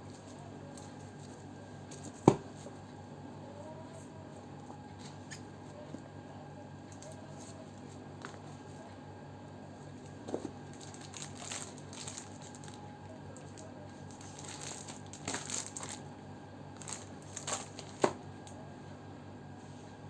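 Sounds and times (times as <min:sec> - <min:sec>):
packaging crinkling and rustling: 0:10.2 - 0:16.1, 0:16.8 - 0:18.5.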